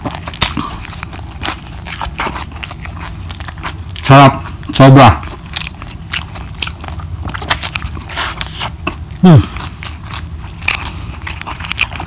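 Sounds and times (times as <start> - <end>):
wet chewing and lip smacking: 0.0 - 12.0
person humming: 9.2 - 9.6.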